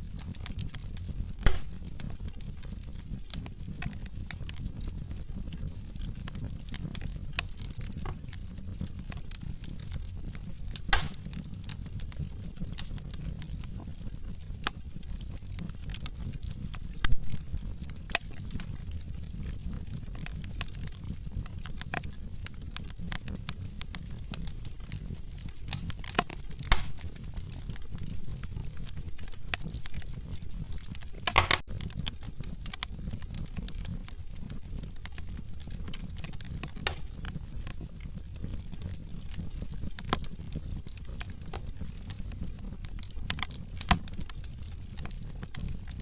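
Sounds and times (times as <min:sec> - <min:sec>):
fire crackling: 0:00.0 - 0:46.0
low rumble of flames: 0:00.0 - 0:46.0
wood pops: 0:01.4 - 0:01.8, 0:10.8 - 0:11.3, 0:25.7 - 0:27.2, 0:31.2 - 0:31.7, 0:36.7 - 0:37.3.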